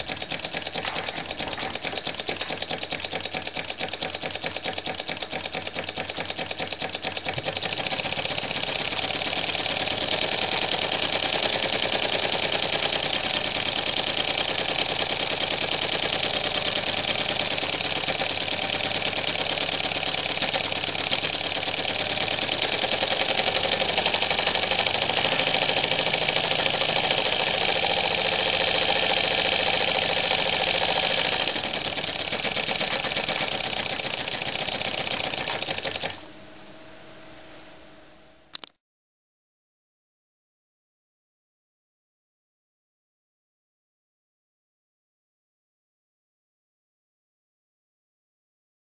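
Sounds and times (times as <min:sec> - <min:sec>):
model steam engine chuffing: 0:00.0 - 0:36.2.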